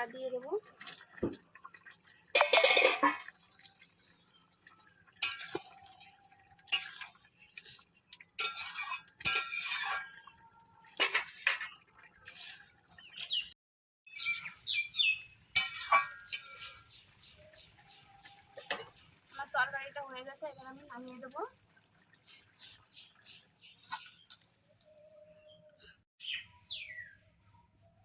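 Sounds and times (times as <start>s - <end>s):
utensil scraping a metal pot: 2.4s - 3.4s, 5.1s - 13.2s, 14.1s - 17.0s, 18.5s - 19.0s, 23.8s - 24.4s.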